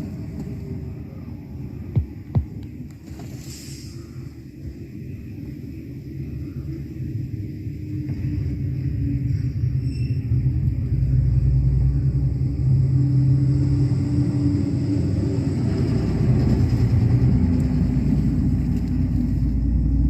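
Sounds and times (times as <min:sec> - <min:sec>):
deep engine rumble: 0:00.0 - 0:20.0.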